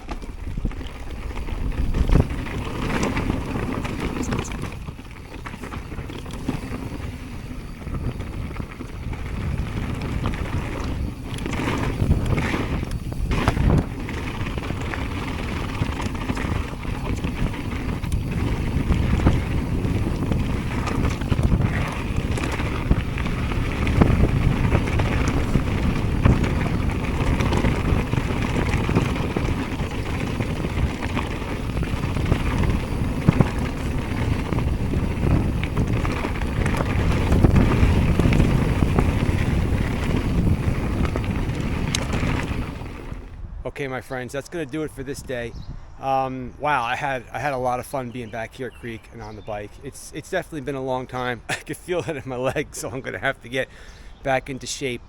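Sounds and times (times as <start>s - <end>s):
bike clattering over bumps: 0.0s - 43.3s
tyres rolling on dirt: 0.0s - 55.0s
wind rushing over microphone: 0.0s - 55.0s.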